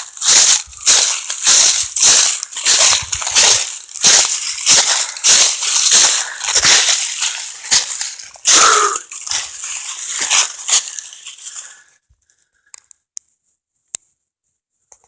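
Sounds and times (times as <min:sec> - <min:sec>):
footsteps crunching through dry leaves: 0:00.0 - 0:12.0.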